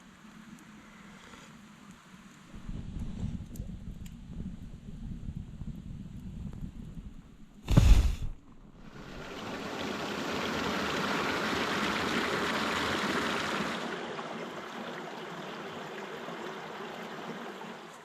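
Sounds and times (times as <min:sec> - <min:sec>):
rushing water: 0:07.8 - 0:18.0.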